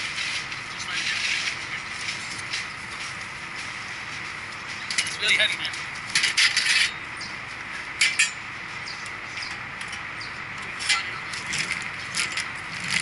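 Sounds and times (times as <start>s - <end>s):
metallic clinks and scrapes: 6.1s - 7.0s, 10.8s - 13.0s.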